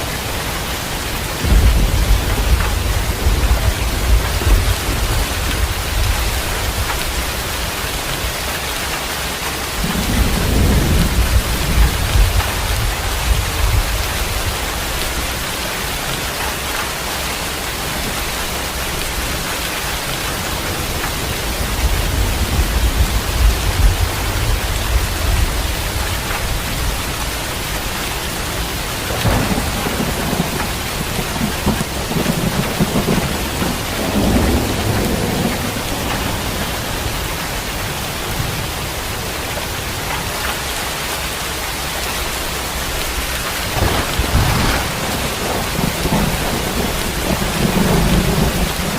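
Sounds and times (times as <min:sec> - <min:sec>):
heavy rain: 0:00.0 - 0:48.9
thunder rumbling: 0:00.5 - 0:16.8, 0:17.5 - 0:39.9, 0:42.4 - 0:48.9.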